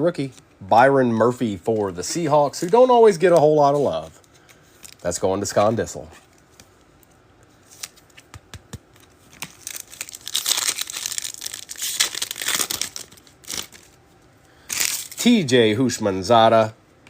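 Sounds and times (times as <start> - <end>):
plastic wrapper crinkling and tearing: 4.2 - 5.2, 8.9 - 14.0, 14.7 - 15.4.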